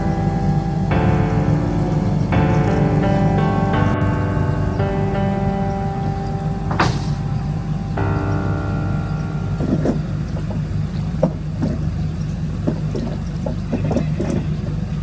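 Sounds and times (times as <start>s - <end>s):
ship engines droning: 4.9s - 12.6s
short knocks: 6.4s - 11.8s.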